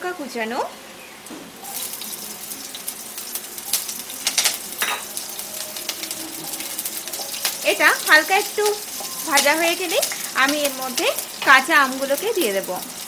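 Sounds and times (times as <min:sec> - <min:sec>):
chillies sizzling in hot oil: 0:00.0 - 0:13.0
oil spitting crackles: 0:01.5 - 0:13.0.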